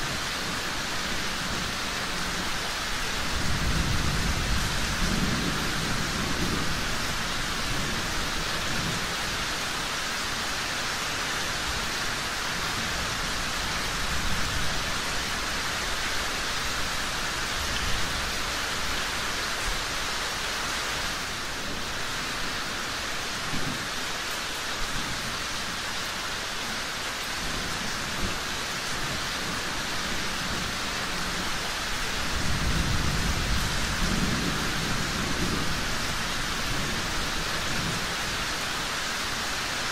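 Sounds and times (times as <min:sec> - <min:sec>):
rain falling: 0:00.0 - 0:39.9
rolling thunder: 0:32.2 - 0:38.1.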